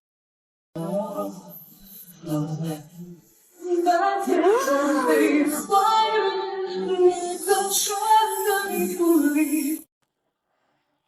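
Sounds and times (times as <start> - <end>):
woman singing: 0.8 - 1.6, 3.6 - 9.9.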